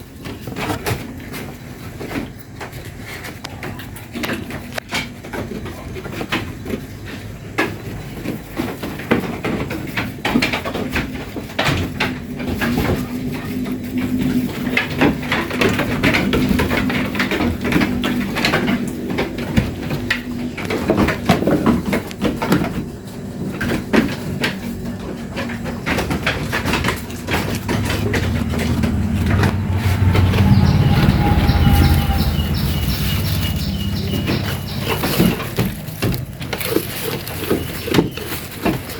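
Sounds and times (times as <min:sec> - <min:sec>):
knocks and clatters: 0:00.0 - 0:38.9
steady low hum: 0:25.2 - 0:37.1
low rumble: 0:26.2 - 0:37.0.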